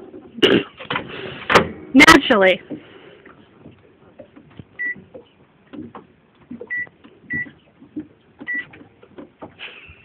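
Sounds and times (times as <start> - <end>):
soft clicks and knocks: 2.6 - 10.0
microwave oven beeping: 4.8 - 5.0, 6.7 - 7.5, 8.4 - 8.7.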